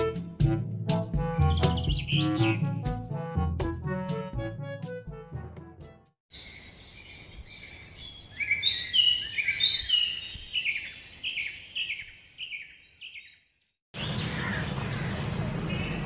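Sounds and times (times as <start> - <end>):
bird chirping: 1.4 - 2.7, 6.3 - 16.0
outdoor background noise: 14.0 - 16.0.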